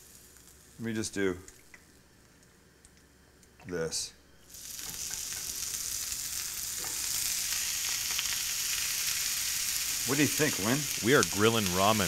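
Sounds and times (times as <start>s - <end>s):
noodles sizzling in a hot pan: 0.0s - 0.9s, 4.4s - 12.0s.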